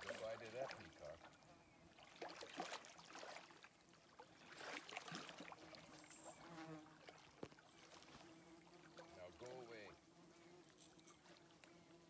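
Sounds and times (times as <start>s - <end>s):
small water splashes and ticks: 0.0s - 10.0s, 10.6s - 11.8s
faint insect hum: 0.0s - 12.0s.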